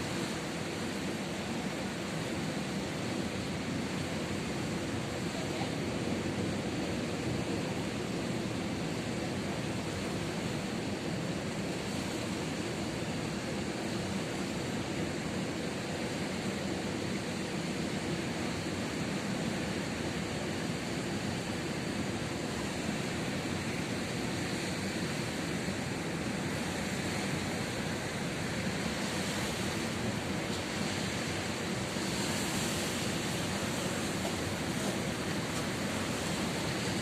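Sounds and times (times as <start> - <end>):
ocean surf breaking: 18.5 - 37.0.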